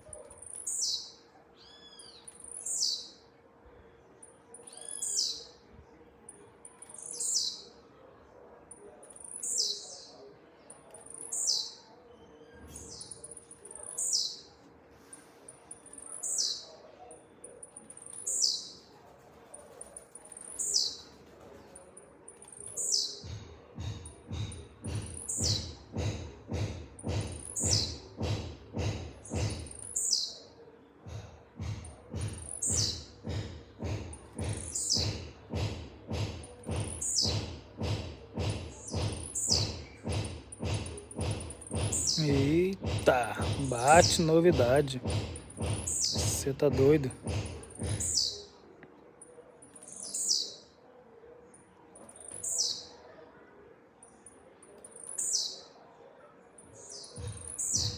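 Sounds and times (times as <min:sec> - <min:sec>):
bird singing short song: 0:00.4 - 0:03.2, 0:03.8 - 0:05.6, 0:06.8 - 0:07.7, 0:09.1 - 0:10.2, 0:11.0 - 0:14.5, 0:15.7 - 0:16.8, 0:17.9 - 0:18.8, 0:20.3 - 0:21.1, 0:22.5 - 0:23.3, 0:29.8 - 0:30.5, 0:48.0 - 0:48.5, 0:49.9 - 0:50.7, 0:52.3 - 0:53.0, 0:54.9 - 0:55.8, 0:56.8 - 0:57.9
background music with steady beat: 0:23.2 - 0:30.1, 0:31.0 - 0:48.3.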